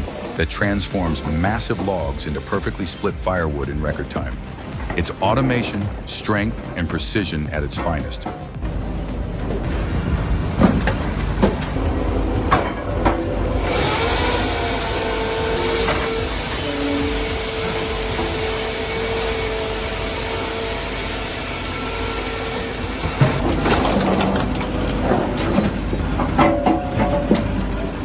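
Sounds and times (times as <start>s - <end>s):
log saw machinery running: 0.0s - 28.0s
wood knocking and clattering: 23.0s - 27.8s.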